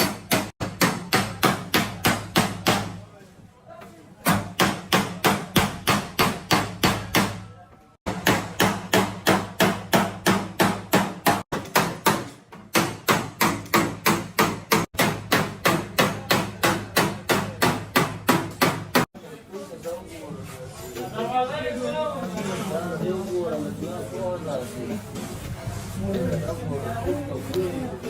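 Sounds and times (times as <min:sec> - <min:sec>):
hammer beating sheet metal: 0:00.0 - 0:03.0, 0:04.2 - 0:07.5, 0:08.1 - 0:19.1.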